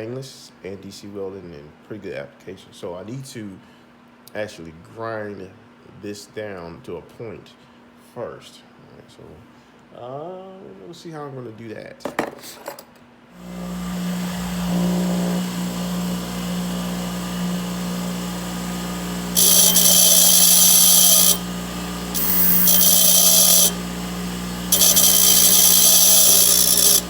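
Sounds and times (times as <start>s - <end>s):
grinder motor humming: 13.4s - 27.0s
grinding hiss: 19.3s - 21.5s, 22.1s - 23.8s, 24.7s - 27.0s.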